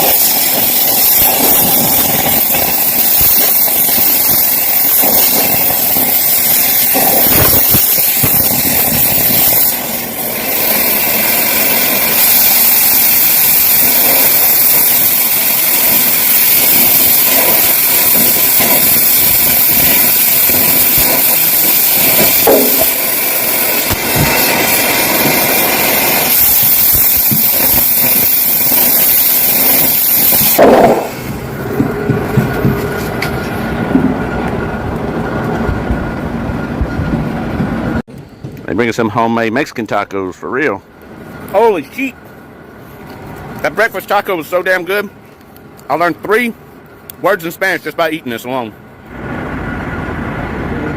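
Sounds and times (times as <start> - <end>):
welding arc crackling: 0.0 - 33.4.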